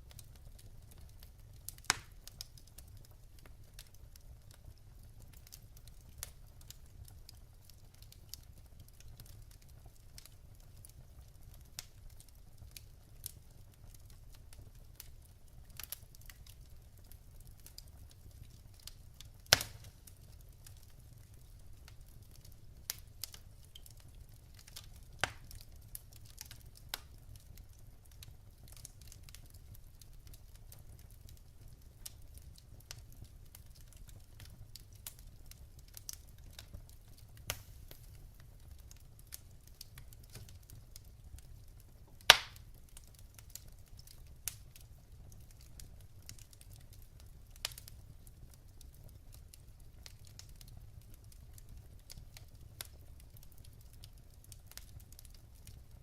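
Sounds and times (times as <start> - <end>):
low fire rumble: 0.0 - 56.0
wood fire crackling and popping: 0.0 - 56.0.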